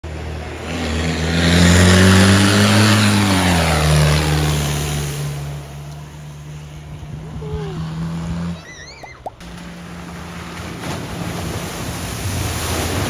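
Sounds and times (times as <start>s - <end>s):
water spray rushing: 8.6s - 9.8s.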